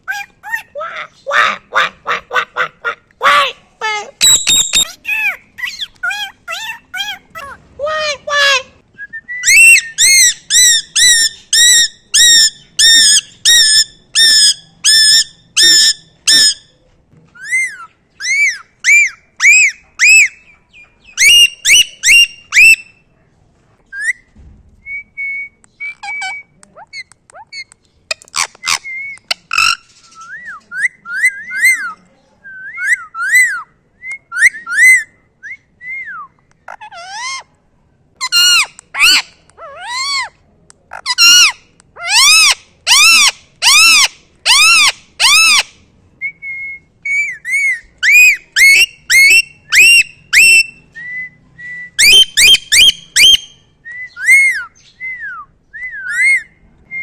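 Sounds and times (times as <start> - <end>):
parrot whistling calls: 4.2 - 7.2, 9.4 - 16.6, 21.2 - 22.9, 41.1 - 45.7, 46.5 - 56.5.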